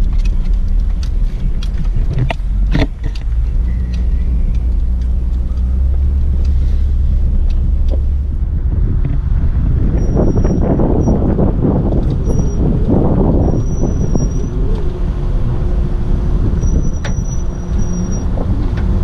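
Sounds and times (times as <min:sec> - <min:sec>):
knocks and rattles: 0:00.0 - 0:14.9
truck engine and road rumble: 0:00.0 - 0:19.0.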